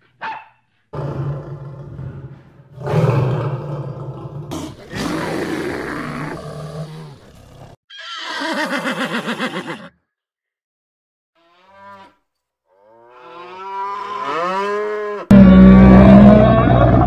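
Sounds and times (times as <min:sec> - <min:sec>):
dog bark: 0:00.1 - 0:00.6
lion growling and roaring: 0:01.0 - 0:07.8, 0:15.3 - 0:17.0.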